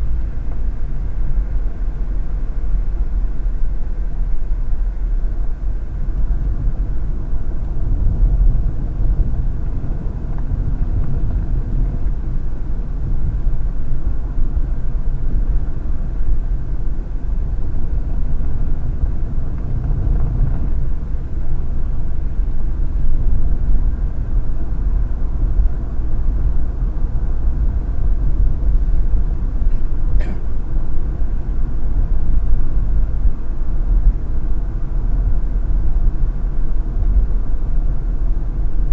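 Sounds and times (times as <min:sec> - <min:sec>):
tyre and engine rumble: 0:00.0 - 0:38.9.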